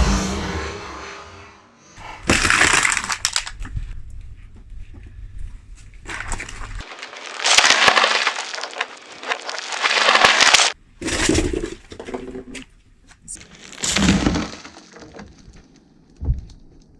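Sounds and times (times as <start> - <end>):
tyre crushing brittle objects: 2.3 - 3.8, 6.0 - 11.6, 13.3 - 15.8.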